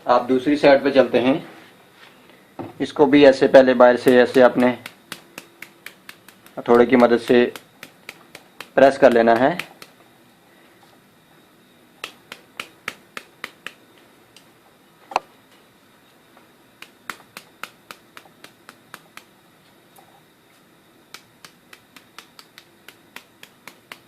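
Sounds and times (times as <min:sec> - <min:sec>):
rubber hammer tapping: 0:04.2 - 0:10.0.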